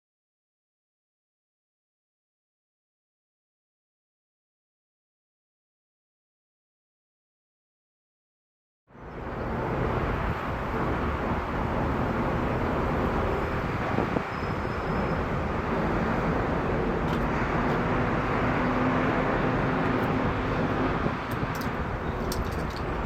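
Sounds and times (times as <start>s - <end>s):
jet engines rushing: 9.1s - 23.0s.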